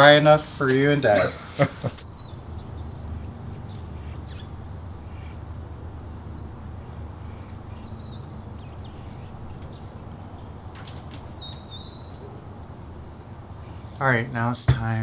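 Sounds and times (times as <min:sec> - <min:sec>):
faint bird chirps: 0:10.9 - 0:13.8.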